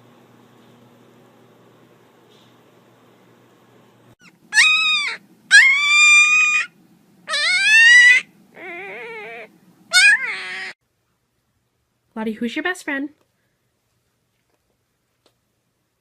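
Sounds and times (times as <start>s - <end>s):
animal crying: 4.2s - 6.7s, 7.3s - 10.8s.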